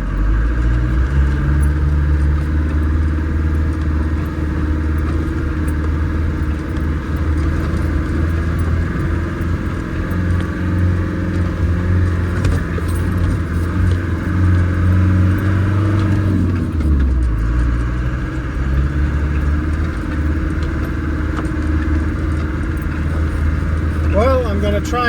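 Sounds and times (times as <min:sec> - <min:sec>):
off-road vehicle engine under load: 0:00.0 - 0:25.0
vehicle rattles: 0:00.0 - 0:25.0.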